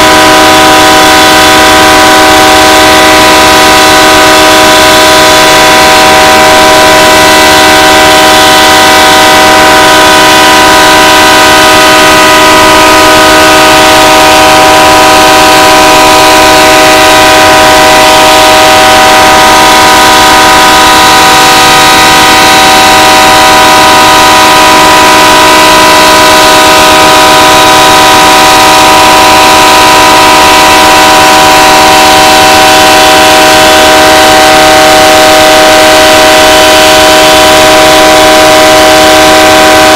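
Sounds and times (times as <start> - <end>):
locomotive air horn chord: 37.0 - 39.9.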